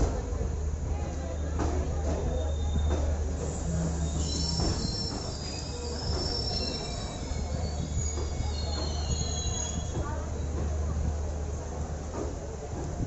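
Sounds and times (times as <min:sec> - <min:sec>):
low rumble of running train: 0:00.0 - 0:13.0
train wheels squealing on rails: 0:01.2 - 0:10.8.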